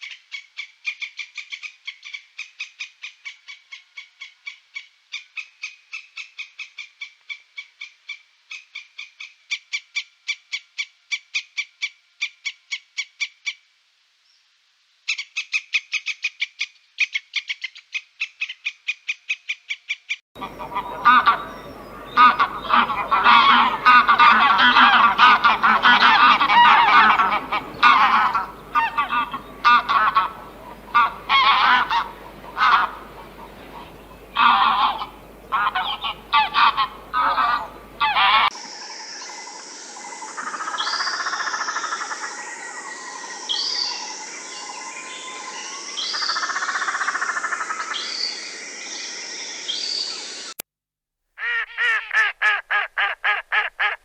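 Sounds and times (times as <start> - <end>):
repeated animal calls: 15.1 - 38.6, 51.4 - 54.0
geese honking: 20.4 - 38.6.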